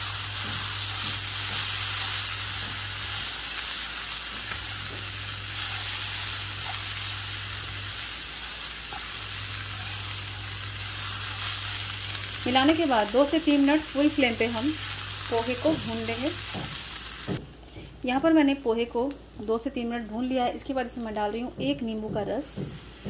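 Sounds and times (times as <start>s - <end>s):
food frying hiss: 0.0s - 23.0s.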